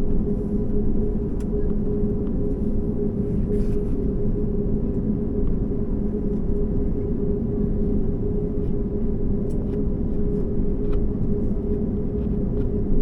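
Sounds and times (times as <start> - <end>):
airliner cabin rumble: 0.0 - 13.0
engine and air system hum: 0.2 - 5.1.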